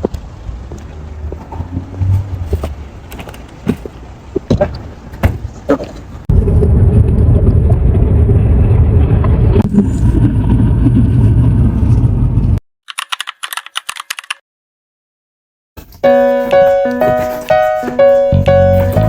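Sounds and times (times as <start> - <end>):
car rumbling in motion: 0.0 - 12.6.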